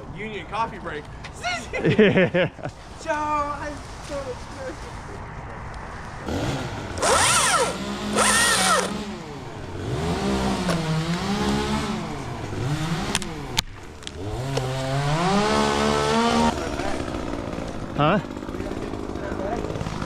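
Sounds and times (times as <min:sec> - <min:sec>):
chainsaw engine revving: 0:06.2 - 0:20.0.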